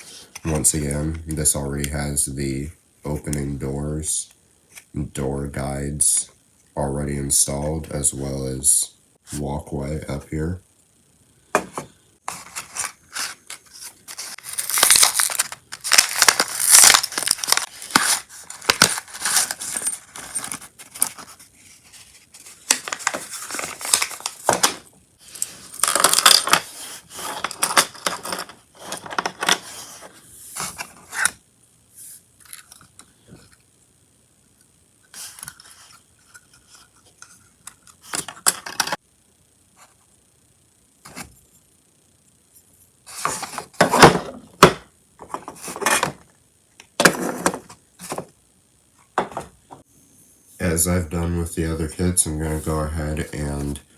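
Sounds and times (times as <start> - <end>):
packaging rustling and tearing: 12.3 - 31.3.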